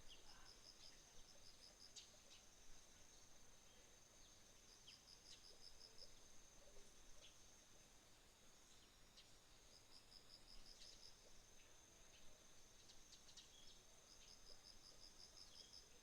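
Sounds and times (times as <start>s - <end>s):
insects trilling: 0.0s - 16.0s
rapid insect chirps: 0.0s - 16.0s.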